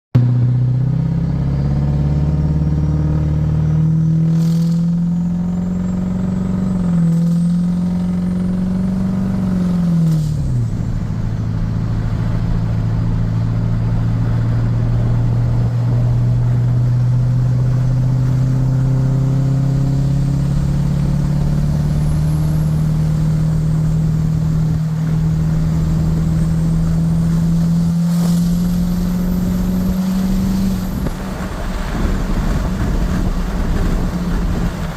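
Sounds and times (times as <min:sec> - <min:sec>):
diesel truck engine driving: 0:00.2 - 0:34.9
exhaust cackle: 0:08.3 - 0:34.9.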